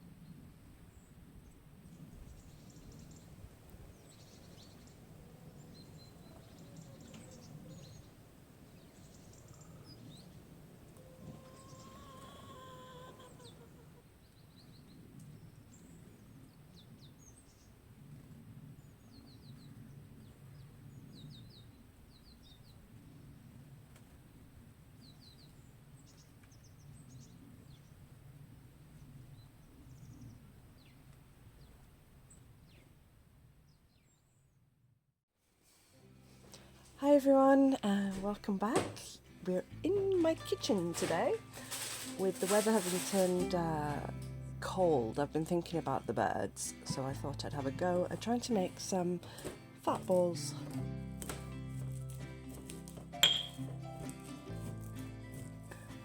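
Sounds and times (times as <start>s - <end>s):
small birds chirping: 0.9s - 17.8s, 18.8s - 22.8s
drawn-out bird call: 4.1s - 14.3s.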